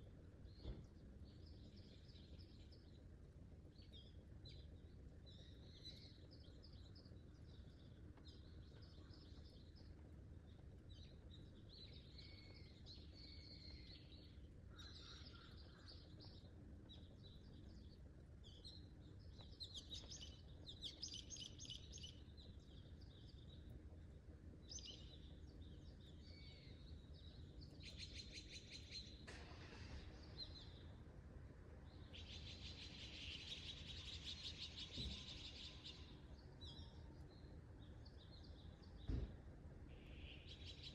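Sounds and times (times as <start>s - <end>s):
low steady background hum: 0.0s - 40.9s.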